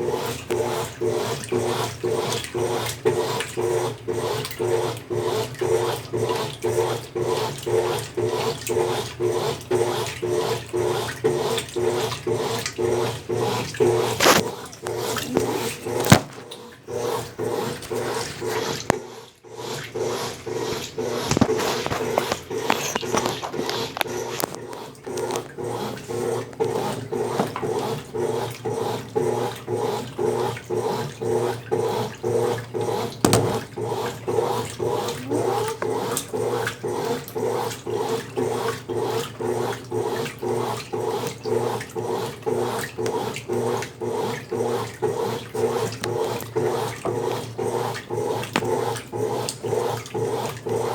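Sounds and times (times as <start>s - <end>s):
washing machine agitating: 0.0s - 50.9s.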